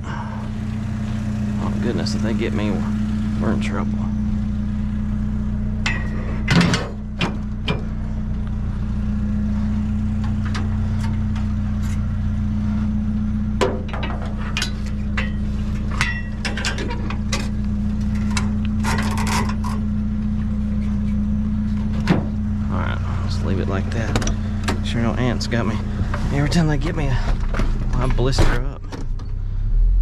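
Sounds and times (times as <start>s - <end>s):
vehicle engine idling: 0.0s - 30.0s
knocks and clatters: 5.8s - 8.0s, 13.6s - 19.9s.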